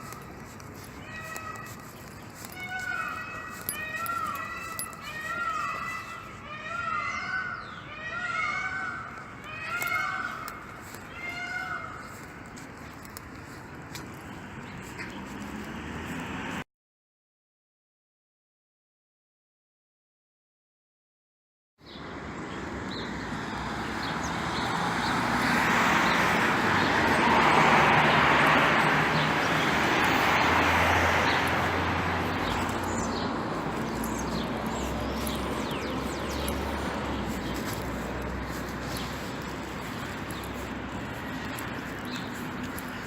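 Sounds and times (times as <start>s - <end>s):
small birds chirping: 0.0s - 16.5s, 21.8s - 43.0s
vehicle passing: 11.8s - 16.6s, 22.1s - 43.0s.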